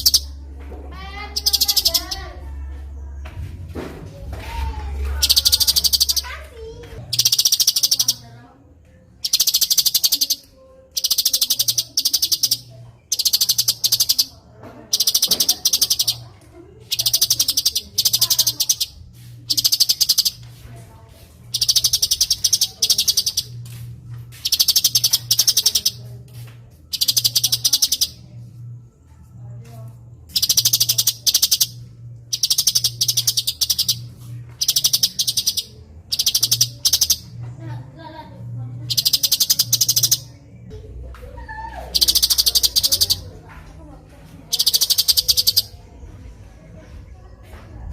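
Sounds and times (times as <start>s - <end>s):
bird calling in trilled bursts: 0.0s - 0.3s, 1.2s - 2.3s, 5.2s - 6.4s, 7.1s - 8.3s, 9.2s - 14.3s, 14.9s - 16.2s, 16.9s - 18.9s, 19.5s - 20.4s, 21.5s - 23.6s, 24.4s - 26.0s, 26.9s - 28.2s, 30.4s - 34.0s, 34.6s - 37.3s, 38.9s - 40.3s, 41.9s - 43.2s, 44.5s - 45.7s
faint low hum: 0.0s - 47.9s.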